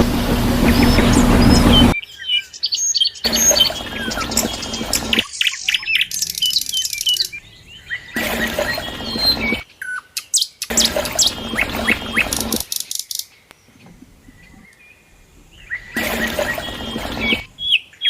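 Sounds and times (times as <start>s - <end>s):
steady low hum: 0.0s - 2.0s
small birds chirping: 0.6s - 18.0s.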